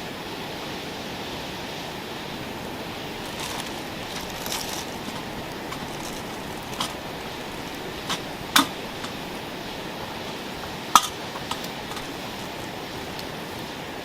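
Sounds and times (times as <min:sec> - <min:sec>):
utensils clinking on cookware: 0:03.1 - 0:13.5.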